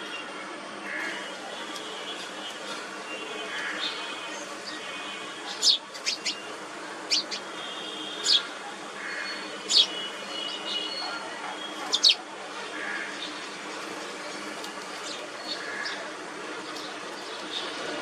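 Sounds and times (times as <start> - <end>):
small birds chirping: 5.5 - 7.5, 9.2 - 12.2.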